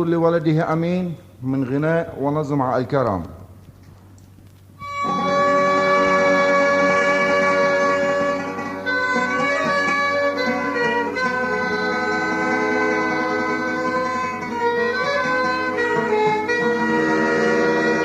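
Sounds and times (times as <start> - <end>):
strings and woodwinds melody: 4.8 - 18.0.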